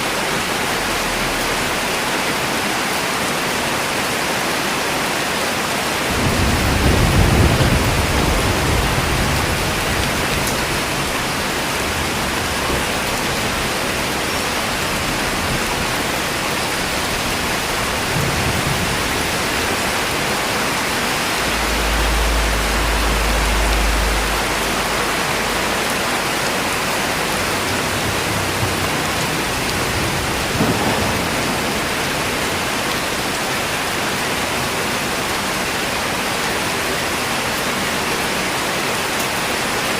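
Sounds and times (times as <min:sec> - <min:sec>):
steady rain falling: 0:00.0 - 0:39.9
thunder rumbling: 0:06.0 - 0:36.8.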